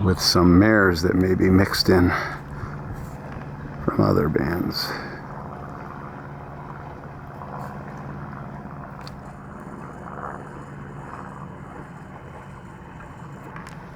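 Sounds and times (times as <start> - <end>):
low motor hum: 0.0 - 13.9
outdoor noise: 0.0 - 13.9.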